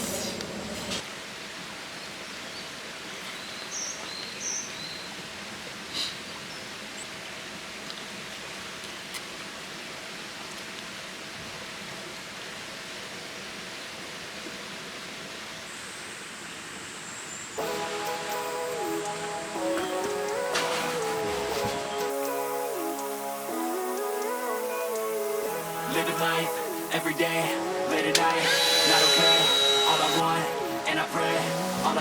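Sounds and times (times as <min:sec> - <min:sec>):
stream rushing: 0:17.6 - 0:32.0.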